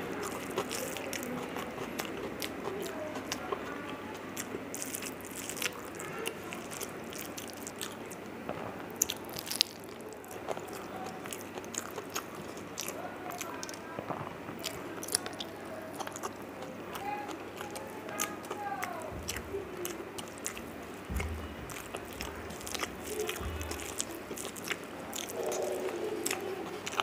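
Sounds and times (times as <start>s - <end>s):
chewing with wet smacks: 0.0s - 27.0s
sharp mouth clicks: 19.2s - 27.0s.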